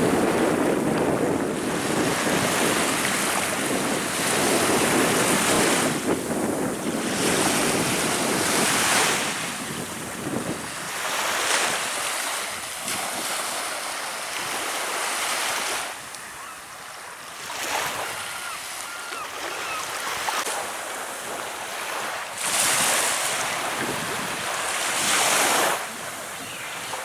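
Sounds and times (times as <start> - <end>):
wind buffeting microphone: 0.0 - 11.8, 22.5 - 27.0
small waves breaking on shore: 0.0 - 27.0.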